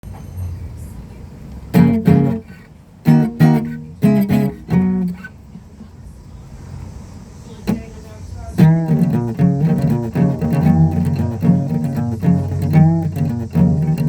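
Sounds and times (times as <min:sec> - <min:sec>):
plucked string instrument notes: 0:01.7 - 0:05.3, 0:07.6 - 0:08.0, 0:08.6 - 0:14.0.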